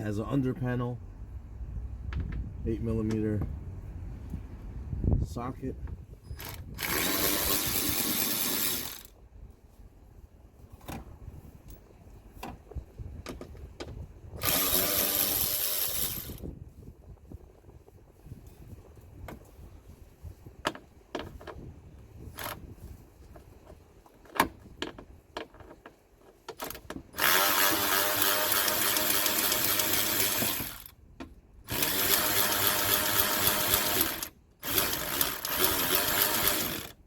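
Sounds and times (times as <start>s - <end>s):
power tool running: 6.4s - 9.1s, 14.4s - 16.4s, 27.2s - 30.9s, 31.7s - 37.0s.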